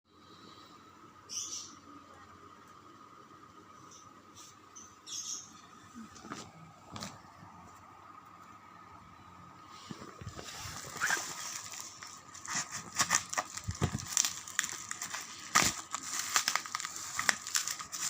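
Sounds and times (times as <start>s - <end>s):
packaging crinkling and crackling: 10.1s - 18.0s.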